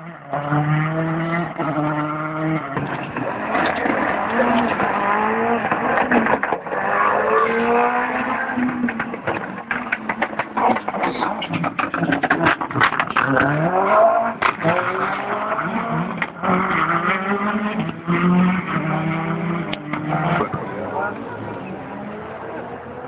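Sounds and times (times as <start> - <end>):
rally car engine revving: 0.0 - 23.0
exhaust cracks and pops: 2.6 - 18.0, 19.7 - 21.3.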